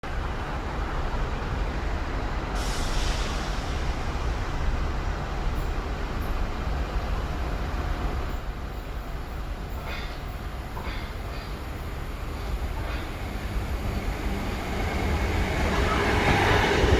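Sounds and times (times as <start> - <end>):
train rumble: 0.1 - 16.9
air hiss: 2.6 - 4.0.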